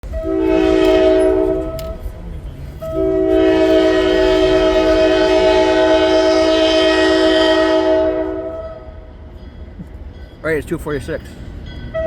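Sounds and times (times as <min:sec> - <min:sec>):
locomotive air horn blasts: 0:00.0 - 0:02.0, 0:02.8 - 0:08.9.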